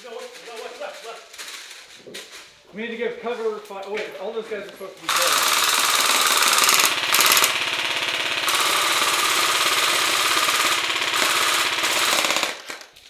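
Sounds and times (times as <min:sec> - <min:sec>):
airsoft rifle full-auto burst: 0:05.1 - 0:12.9.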